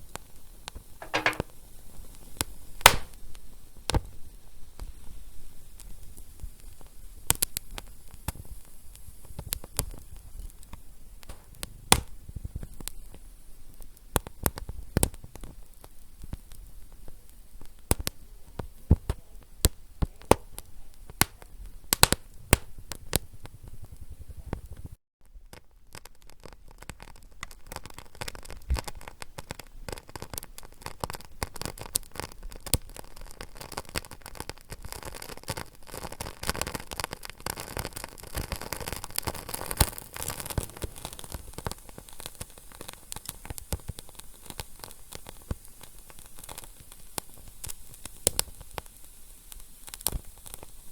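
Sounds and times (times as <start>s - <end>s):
low hiss: 1.0s - 1.6s, 2.4s - 14.9s
wood fire crackling: 1.0s - 24.9s, 25.5s - 50.9s.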